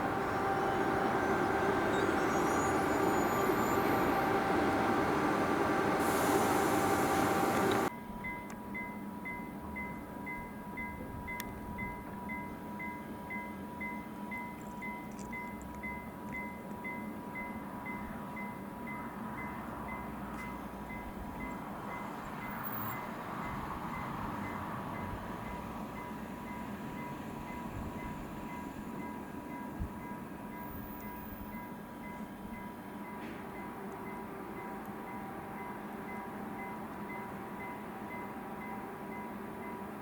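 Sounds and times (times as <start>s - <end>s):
train running past: 0.0s - 7.9s, 16.8s - 40.0s
level-crossing warning bell: 0.0s - 40.0s.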